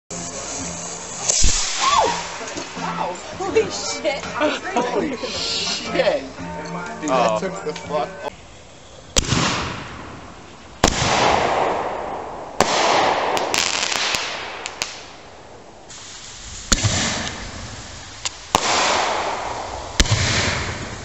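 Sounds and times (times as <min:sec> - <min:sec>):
fireworks crackling pops: 0:00.1 - 0:04.2, 0:09.1 - 0:21.0
fireworks rushing hiss: 0:00.1 - 0:06.4, 0:12.6 - 0:15.2, 0:15.8 - 0:21.0
fireworks bangs: 0:00.4 - 0:05.9, 0:09.2 - 0:21.0.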